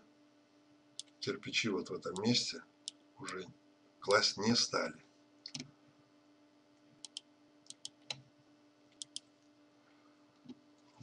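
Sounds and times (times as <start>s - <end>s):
low steady hum: 0.0s - 11.0s
computer mouse clicks: 1.0s - 1.2s, 5.4s - 5.7s, 7.0s - 8.3s, 8.9s - 9.3s.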